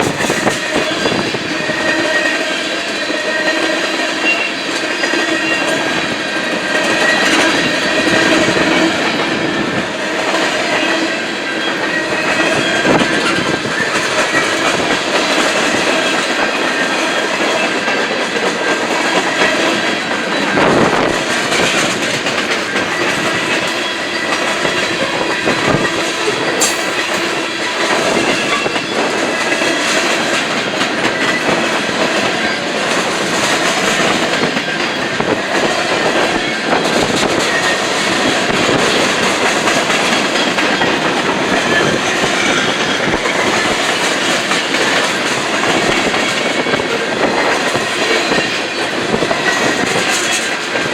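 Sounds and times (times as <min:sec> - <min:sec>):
freight train wheels on rails: 0:00.0 - 0:50.9.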